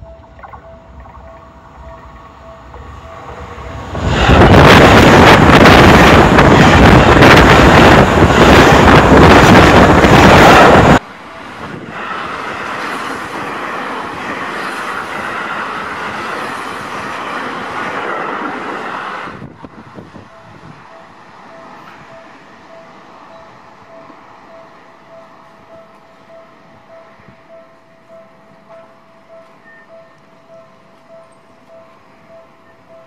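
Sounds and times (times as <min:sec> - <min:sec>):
wheels clattering on rail: 0:00.0 - 0:24.4
train approaching and running past: 0:00.0 - 0:33.0
train passing at speed: 0:00.0 - 0:33.0.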